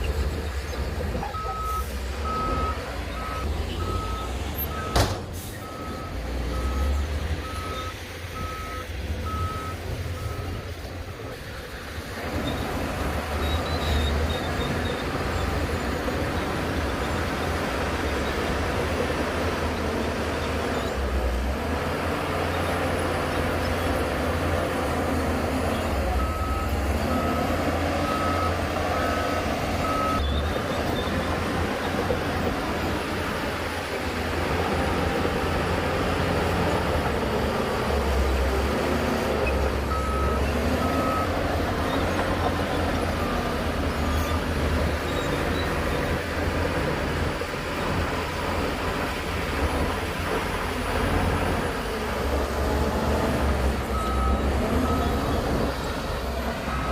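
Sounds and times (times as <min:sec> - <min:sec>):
heavy diesel machinery running: 0:00.0 - 0:56.9
reversing alarm beeping: 0:01.4 - 0:05.0.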